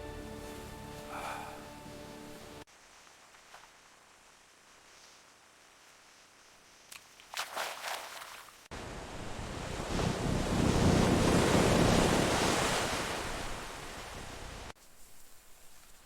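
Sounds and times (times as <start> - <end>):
ocean wave washing: 8.8 - 14.7.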